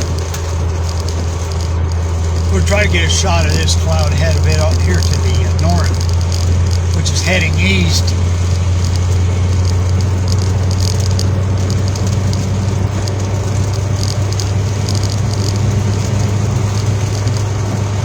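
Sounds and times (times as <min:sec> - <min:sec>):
road noise inside cabin: 0:00.0 - 0:18.0
vehicle engine humming: 0:00.0 - 0:18.0.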